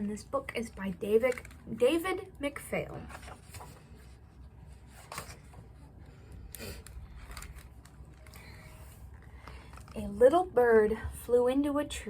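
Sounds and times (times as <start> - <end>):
low room hum: 0.0 - 12.0
picture book pages rustling: 2.6 - 10.4.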